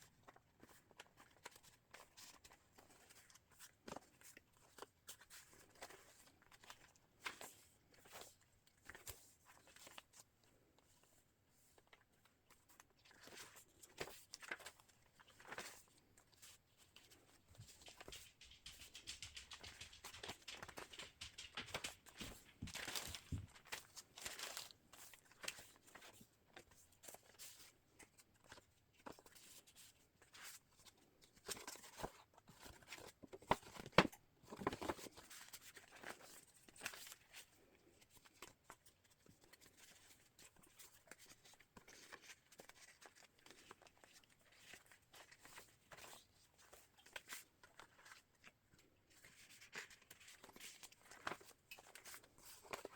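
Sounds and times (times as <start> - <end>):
paper pages rustling: 12.5 - 37.3, 49.1 - 52.9.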